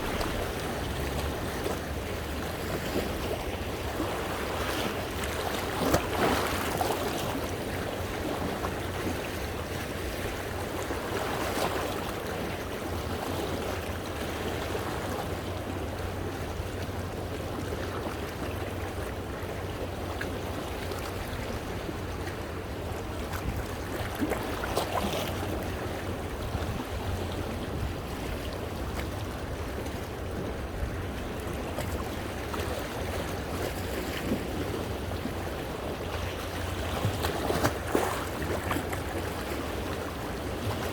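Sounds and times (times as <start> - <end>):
steady low rumble: 0.0 - 3.8
sea waves washing over rocks: 0.0 - 40.9.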